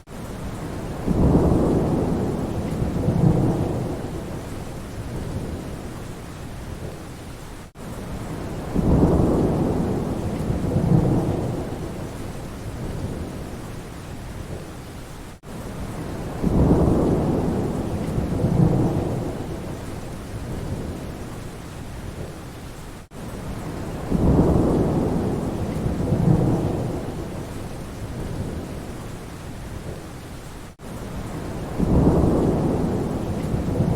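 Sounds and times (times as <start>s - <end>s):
steady rain: 0.0s - 33.9s
thunder rumbling: 0.5s - 6.0s, 8.1s - 13.6s, 15.8s - 21.3s, 23.5s - 30.0s, 31.2s - 33.9s.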